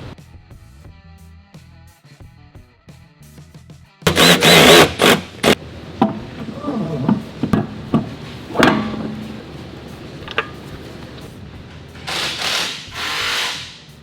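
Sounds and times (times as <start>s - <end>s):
loud noisy burst: 4.1s - 5.8s
short squeaks: 4.1s - 11.3s
sharp knocks and clunks: 4.1s - 12.1s.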